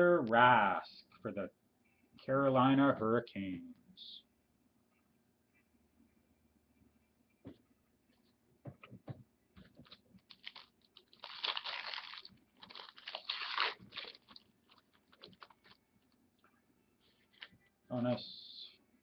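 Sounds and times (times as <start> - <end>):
wrapper crackling rustle: 9.8 - 15.8.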